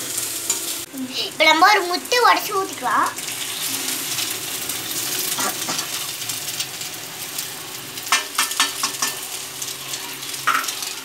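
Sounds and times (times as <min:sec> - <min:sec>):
food sizzling in hot oil: 0:00.0 - 0:11.0
metal spoon knocking against pan: 0:08.1 - 0:09.2.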